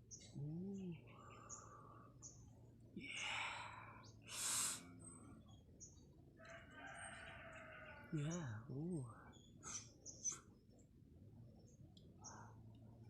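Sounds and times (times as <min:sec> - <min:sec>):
faint bird chirps: 0:00.0 - 0:10.9, 0:11.5 - 0:13.0
sharp hissing breath: 0:04.3 - 0:04.9.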